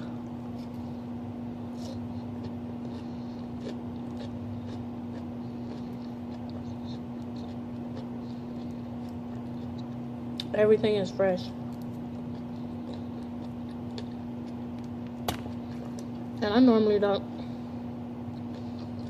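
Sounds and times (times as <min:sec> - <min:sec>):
low electrical hum: 0:00.0 - 0:19.0
chewing: 0:01.7 - 0:10.5, 0:11.8 - 0:16.2, 0:18.2 - 0:19.0.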